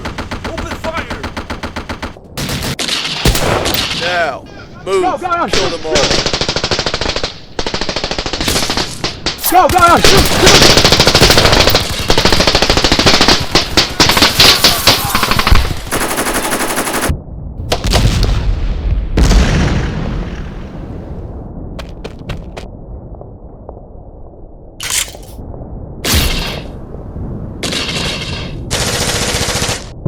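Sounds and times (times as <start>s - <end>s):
machine gun and rifle fire: 6.0s - 17.1s, 27.6s - 30.0s.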